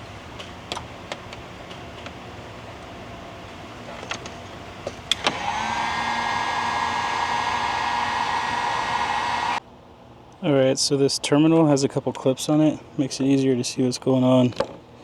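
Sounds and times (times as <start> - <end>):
clicks: 4.0 - 9.6
small electric motor whine: 4.2 - 9.6.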